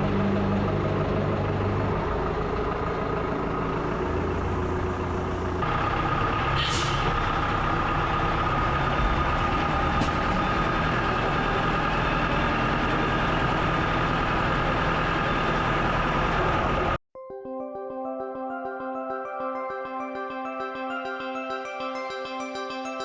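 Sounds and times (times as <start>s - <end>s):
diesel engine running: 0.0s - 17.0s
music: 17.2s - 23.0s.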